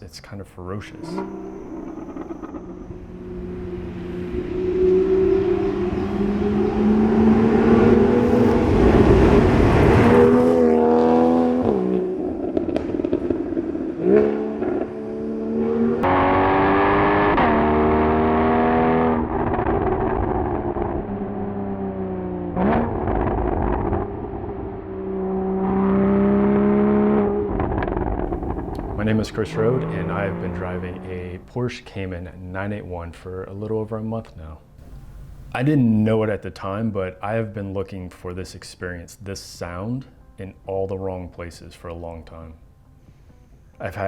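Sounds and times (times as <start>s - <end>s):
car engine accelerating: 0.8s - 31.6s.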